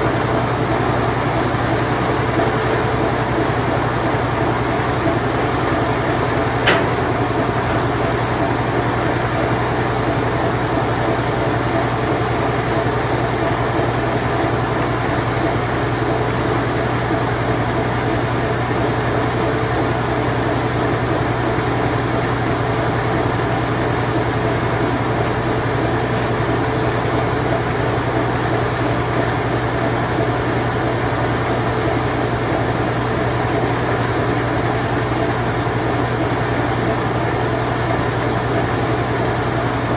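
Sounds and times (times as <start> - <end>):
washing machine spinning: 0.0 - 39.9
sharp click: 6.6 - 7.0.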